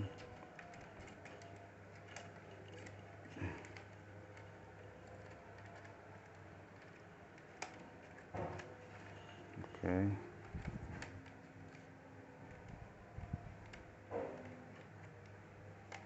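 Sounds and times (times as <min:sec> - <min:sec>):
plastic parts clicking: 0:00.0 - 0:16.0.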